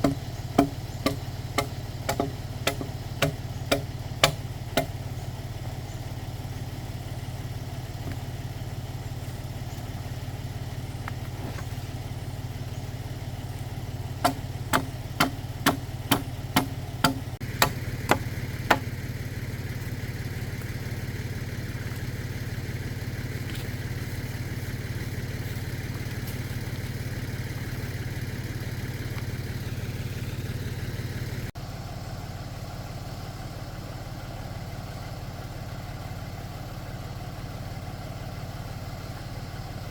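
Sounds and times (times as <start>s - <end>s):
sharp knocks: 0.0s - 5.0s, 14.2s - 18.9s
tractor engine running: 0.0s - 39.9s.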